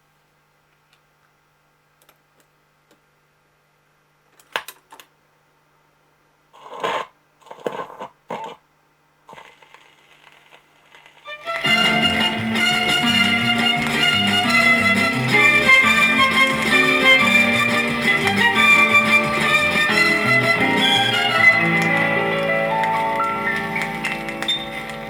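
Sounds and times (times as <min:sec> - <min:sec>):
folk song with guitar and strings: 0:11.3 - 0:25.0
record player clacks and knocks: 0:21.6 - 0:25.0.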